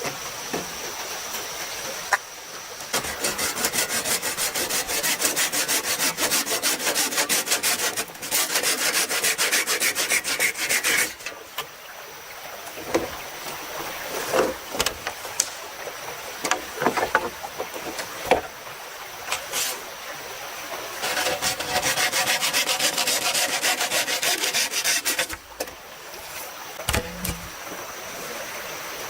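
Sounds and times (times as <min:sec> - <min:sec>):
hand saw cutting bamboo: 0:02.9 - 0:11.3, 0:19.3 - 0:19.8, 0:21.0 - 0:27.6.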